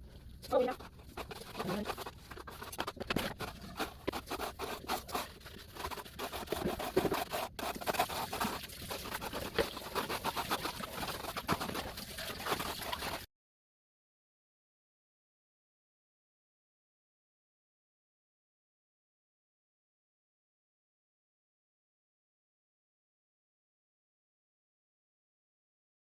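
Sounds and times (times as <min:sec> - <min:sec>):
small scratches and clicks: 0:00.4 - 0:13.3.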